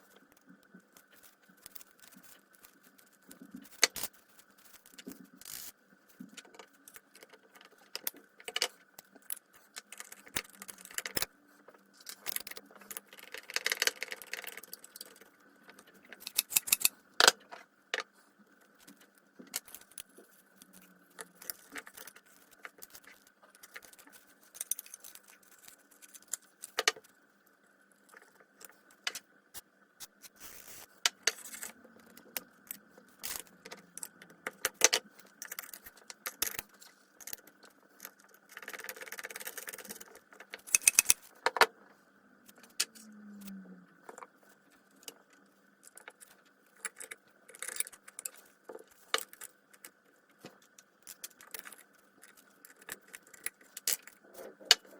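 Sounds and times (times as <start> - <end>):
metal parts and tools clinking: 12.0 - 18.1, 31.2 - 41.7.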